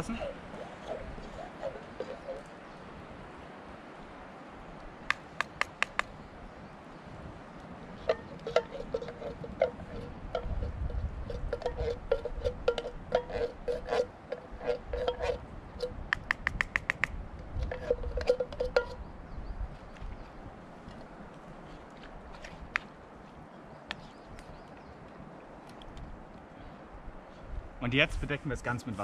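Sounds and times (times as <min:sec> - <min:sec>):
tin can tapping metal pot: 0:08.1 - 0:19.0.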